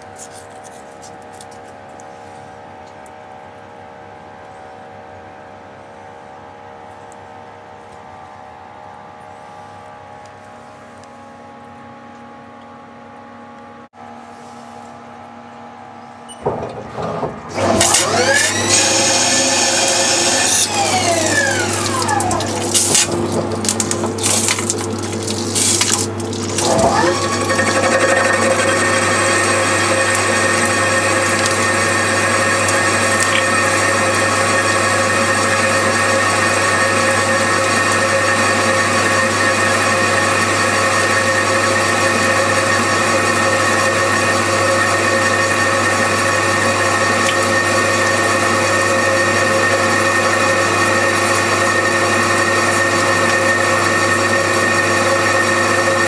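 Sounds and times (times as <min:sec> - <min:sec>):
lathe spindle whine: 0:16.6 - 0:23.5, 0:26.6 - 0:56.0.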